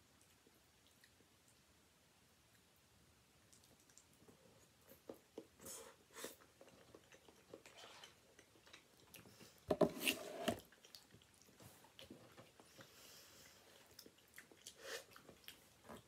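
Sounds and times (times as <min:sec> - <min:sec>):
person chewing with wet clicks: 0:00.0 - 0:01.7, 0:03.4 - 0:05.6, 0:06.3 - 0:09.7, 0:10.6 - 0:16.0.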